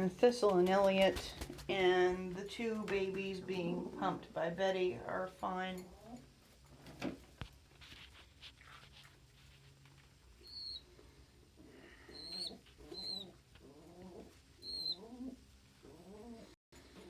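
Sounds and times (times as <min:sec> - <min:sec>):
young pigeons peeping: 0:10.1 - 0:17.0
pigeons cooing: 0:11.6 - 0:17.0.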